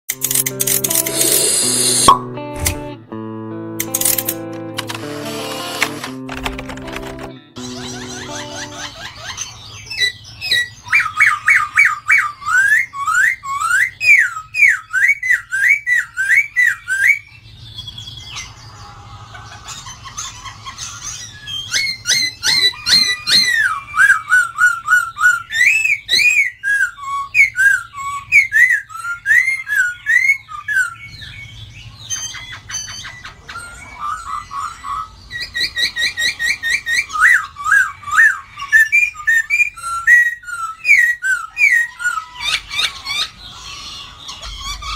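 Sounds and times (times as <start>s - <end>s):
laughingthrush singing whistled notes: 21.0s - 31.3s, 33.5s - 44.9s.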